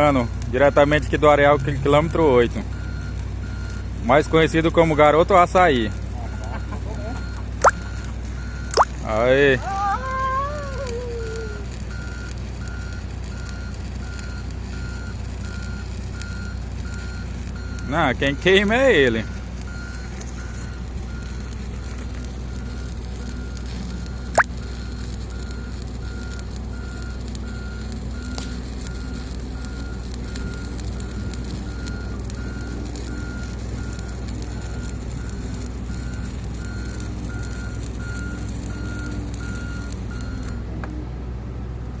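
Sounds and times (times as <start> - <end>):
engine rumbling: 0.0 - 42.0
back-up alarm beeping: 11.9 - 21.6.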